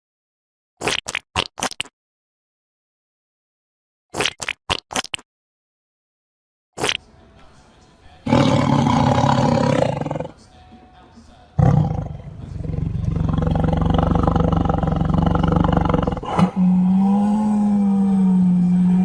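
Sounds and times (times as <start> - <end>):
animal's steady held call: 8.2 - 10.4, 11.6 - 19.0
big cat roaring: 8.2 - 10.4, 11.6 - 19.0.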